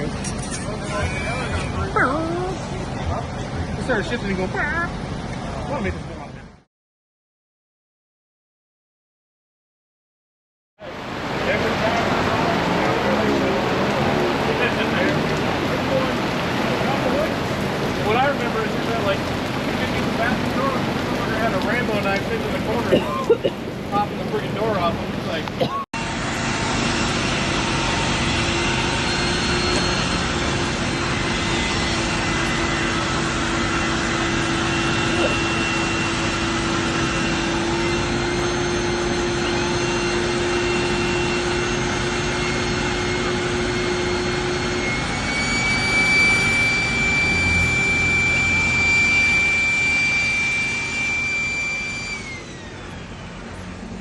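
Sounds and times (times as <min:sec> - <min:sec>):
motor-driven machine whining: 0:26.0 - 0:54.0.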